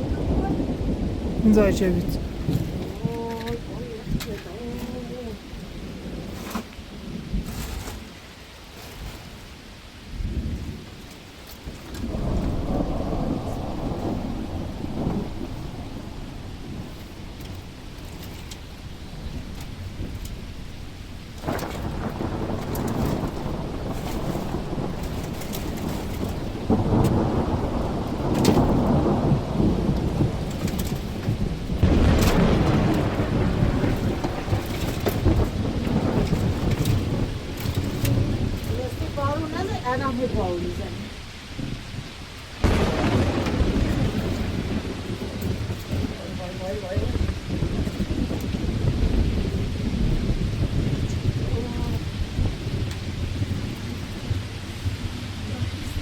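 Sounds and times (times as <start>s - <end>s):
heavy rain: 0.0s - 56.0s
thunder rumbling: 0.0s - 56.0s.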